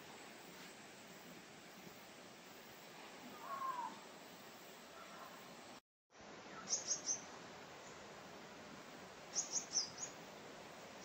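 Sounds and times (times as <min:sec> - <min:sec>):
faint outdoor hiss: 0:00.0 - 0:11.0
wild birds calling: 0:03.3 - 0:04.0, 0:06.5 - 0:08.0, 0:09.3 - 0:10.2.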